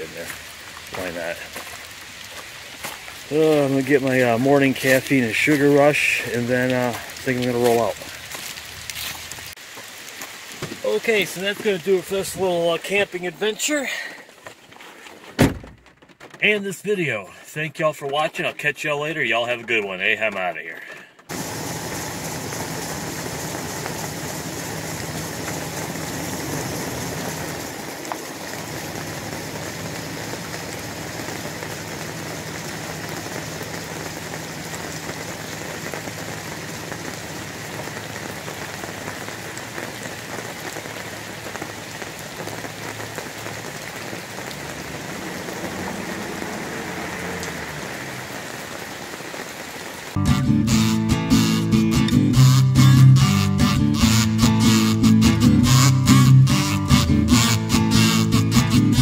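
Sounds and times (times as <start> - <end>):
rain pattering on leaves and gravel: 0.0 - 50.2
pickup truck engine running: 21.2 - 39.1.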